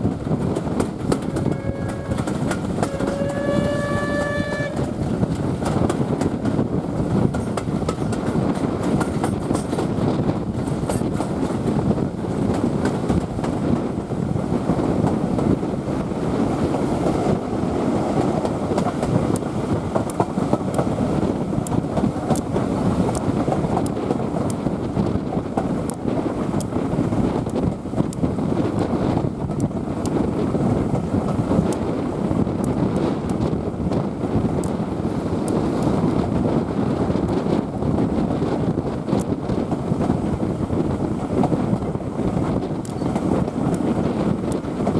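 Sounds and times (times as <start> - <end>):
train coaches rumbling: 0.0 - 44.9
wheels clicking on rails: 0.0 - 44.9.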